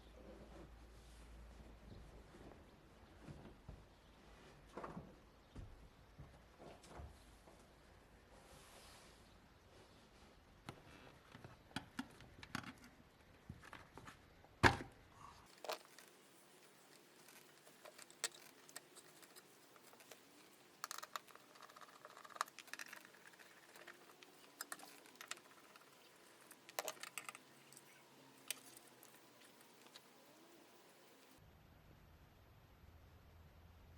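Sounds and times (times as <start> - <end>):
small hard objects clinking: 15.5 - 31.4.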